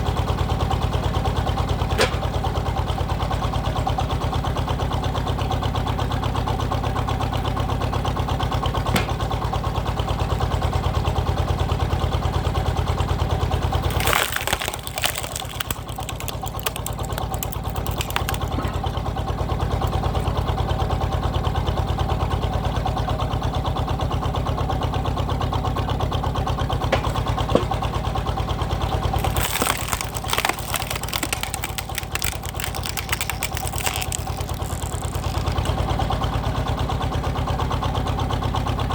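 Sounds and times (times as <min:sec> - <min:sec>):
wood crackling and snapping: 0:13.7 - 0:19.0, 0:29.0 - 0:36.1.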